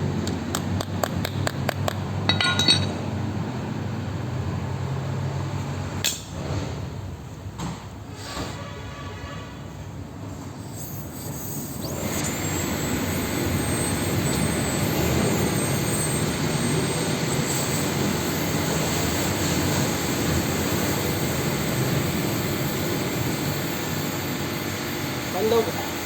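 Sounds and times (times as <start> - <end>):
blowtorch flame rushing: 10.6 - 25.4.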